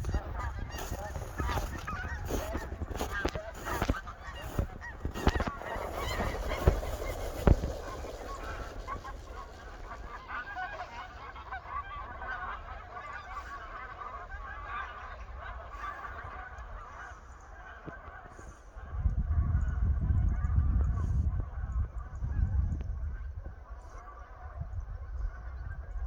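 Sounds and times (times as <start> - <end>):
geese honking: 0.0 - 19.0.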